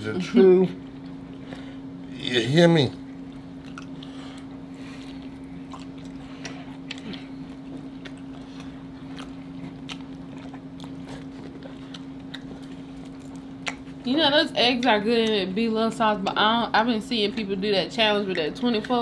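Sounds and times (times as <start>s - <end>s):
steady low hum: 0.0s - 19.0s
chewing: 3.2s - 14.1s.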